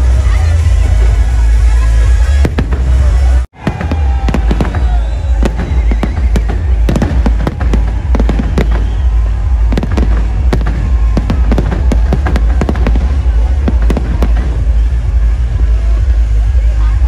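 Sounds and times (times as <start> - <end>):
heavy low rumble: 0.0 - 17.0
fireworks bangs and crackling: 1.9 - 16.5.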